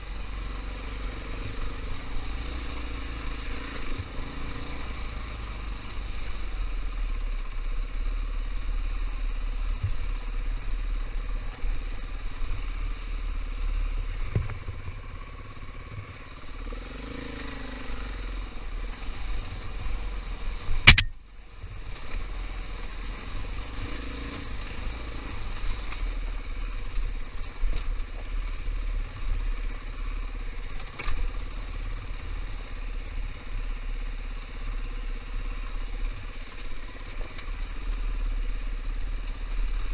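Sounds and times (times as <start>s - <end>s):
dirt bike engine running: 0.0s - 39.9s
sharp knock: 20.9s - 21.2s.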